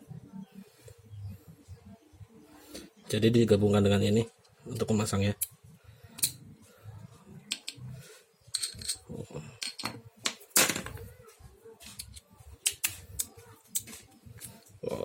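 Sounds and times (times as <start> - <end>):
steel sockets clicking and clinking: 7.5 - 7.8, 8.5 - 10.0.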